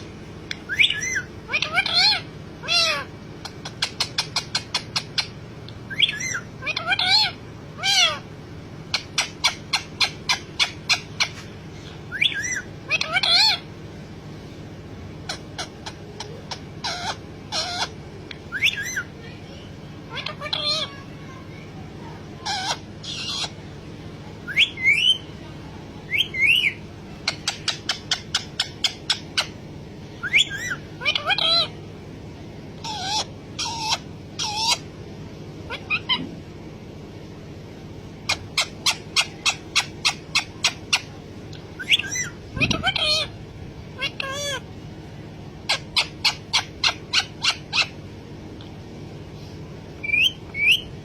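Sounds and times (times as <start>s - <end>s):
parrot calls: 0.0s - 8.3s, 8.9s - 13.7s, 15.2s - 19.1s, 20.1s - 21.1s, 22.4s - 23.6s, 24.4s - 25.3s, 26.1s - 29.6s, 30.2s - 31.8s, 32.8s - 34.9s, 35.7s - 36.3s, 38.2s - 41.2s, 41.8s - 43.4s, 44.0s - 44.7s, 45.6s - 48.0s, 50.0s - 51.0s.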